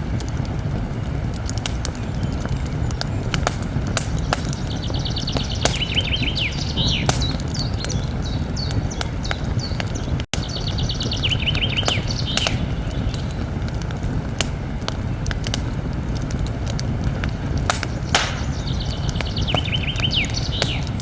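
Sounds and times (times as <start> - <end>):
campfire crackling and popping: 0.0 - 21.0
songbird singing: 1.8 - 13.7, 17.2 - 21.0
low rumble: 12.2 - 21.0.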